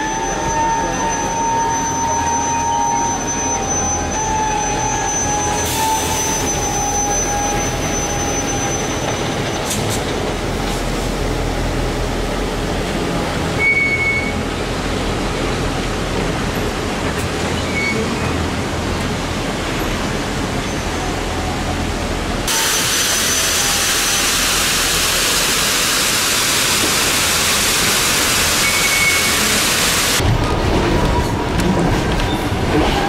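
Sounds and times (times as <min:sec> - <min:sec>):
high squeal: 0:00.0 - 0:09.8, 0:22.5 - 0:26.1, 0:27.5 - 0:30.2
train wheels rumbling on rails: 0:00.2 - 0:33.0.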